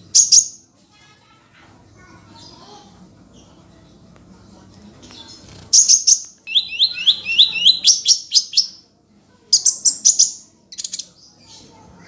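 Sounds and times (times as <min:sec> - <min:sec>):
songbird singing rapid phrases: 0:00.0 - 0:00.7, 0:05.0 - 0:12.0.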